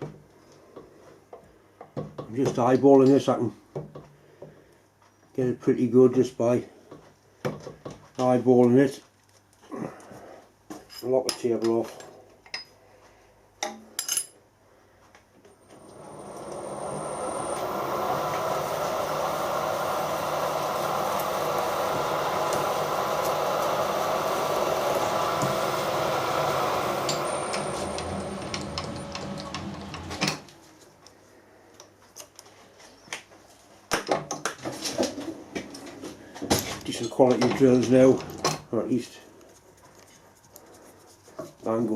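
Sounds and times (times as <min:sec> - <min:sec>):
milling machine cutting steel: 0:15.6 - 0:30.6.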